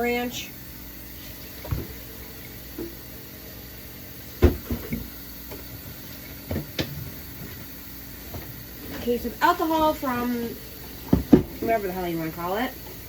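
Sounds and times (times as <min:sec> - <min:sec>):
jars and bottles clunking: 0:04.4 - 0:05.7, 0:11.0 - 0:11.8.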